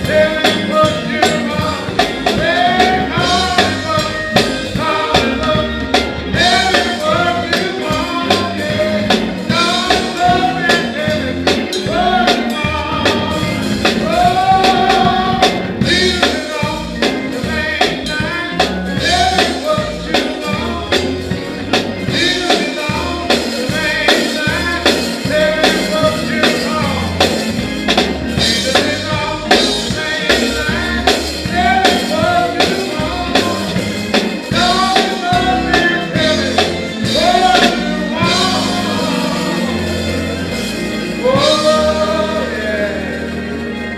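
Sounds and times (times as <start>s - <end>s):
person singing: 0.0s - 27.8s, 28.4s - 43.9s
band playing gospel music: 0.0s - 43.9s
steady drum beat: 0.0s - 43.9s.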